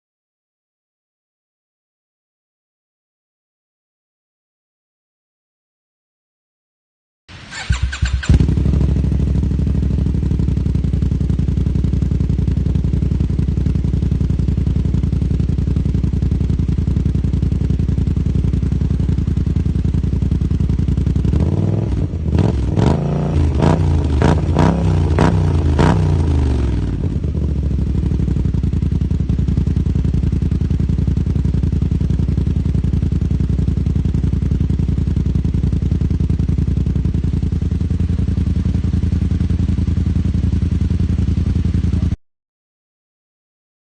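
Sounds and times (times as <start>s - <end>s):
motorcycle engine idling and revving: 7.3s - 42.2s.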